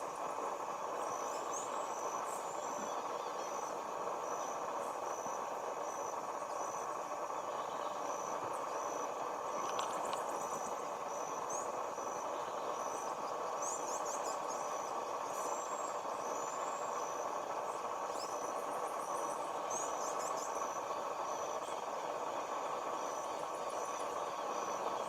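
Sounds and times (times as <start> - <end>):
high repeating insect chirp: 0.0 - 25.0
outdoor background hum: 0.0 - 25.0.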